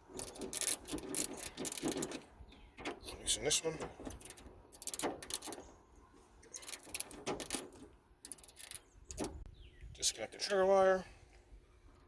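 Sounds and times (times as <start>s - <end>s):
wrench clicking: 4.1s - 5.6s, 6.6s - 9.3s.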